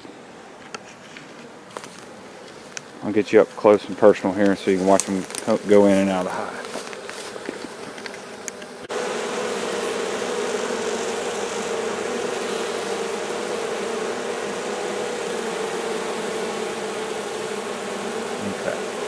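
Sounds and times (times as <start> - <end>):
honey bees humming: 0.0 - 19.0.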